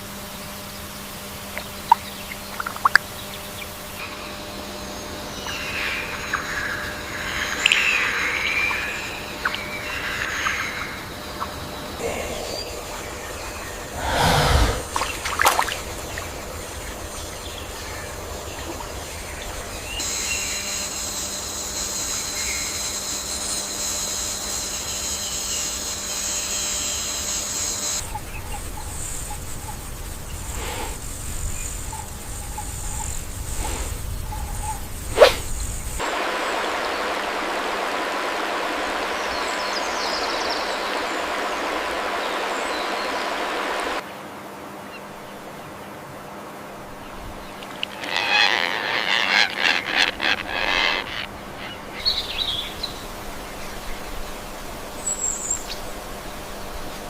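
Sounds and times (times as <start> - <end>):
running water rushing: 7.5 - 19.8, 36.0 - 44.1, 45.4 - 55.0.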